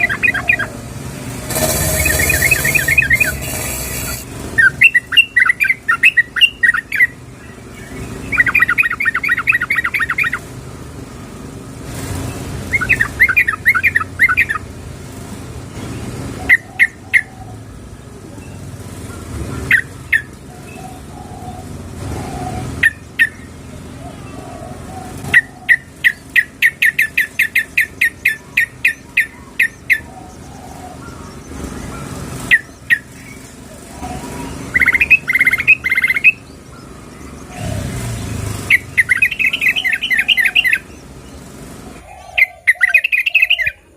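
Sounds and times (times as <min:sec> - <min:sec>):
sharp bird notes: 0:00.0 - 0:10.5, 0:25.3 - 0:43.8.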